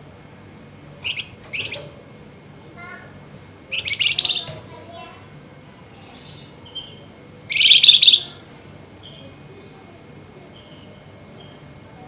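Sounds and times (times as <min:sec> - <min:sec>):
faint high bird calls: 0:01.0 - 0:01.9, 0:03.7 - 0:04.6, 0:06.2 - 0:09.4
songbird harsh chattering: 0:03.7 - 0:04.6, 0:06.8 - 0:08.4.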